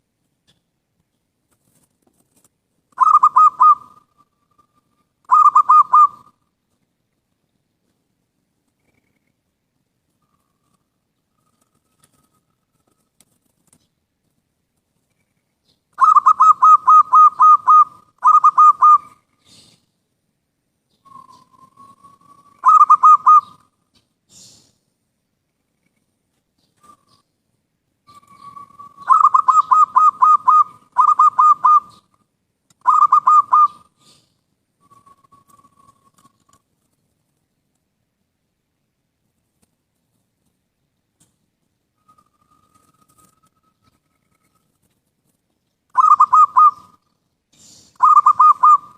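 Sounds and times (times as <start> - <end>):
dove cooing: 3.0 - 6.4, 16.0 - 19.8, 21.1 - 23.7, 28.1 - 32.2, 32.8 - 36.5, 45.9 - 47.1, 48.0 - 48.9.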